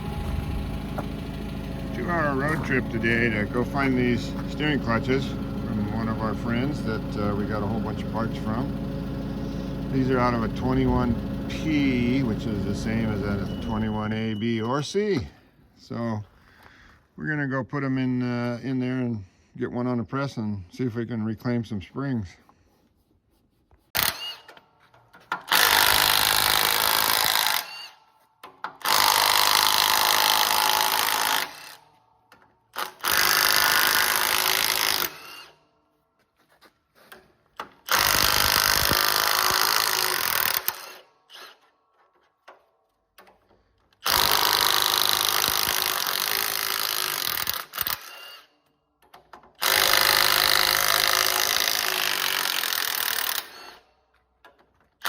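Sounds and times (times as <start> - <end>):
power tool running: 0.0 - 14.3, 24.0 - 24.6, 25.3 - 28.0, 28.6 - 35.6, 37.6 - 41.7, 44.0 - 48.6, 49.4 - 53.9.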